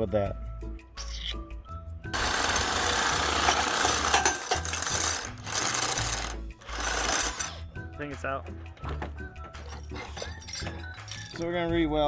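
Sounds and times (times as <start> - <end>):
air impact wrench: 2.2 - 7.7.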